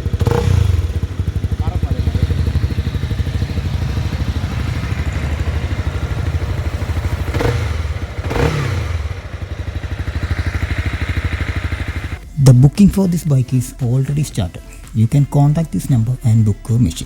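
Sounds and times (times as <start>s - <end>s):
engine revving: 0.0s - 12.4s
motorcycle engine idling: 0.0s - 17.0s.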